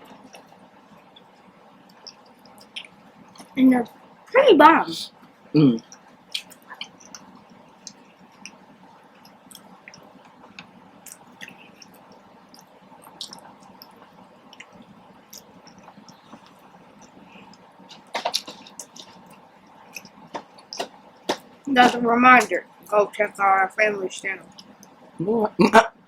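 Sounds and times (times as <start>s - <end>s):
wet chewing: 1.2s - 3.6s, 5.9s - 22.5s, 24.4s - 25.0s
lip smacks: 5.9s - 8.6s, 9.2s - 21.5s.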